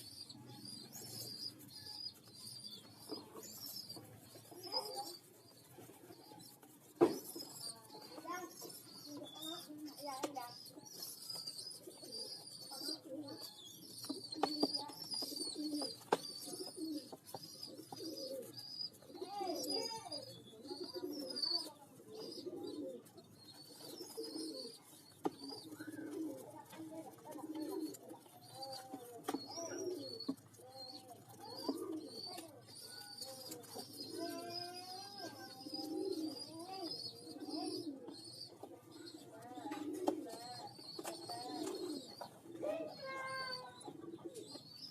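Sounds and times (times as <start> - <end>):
squabs squeaking and cooing: 0.0 - 44.9.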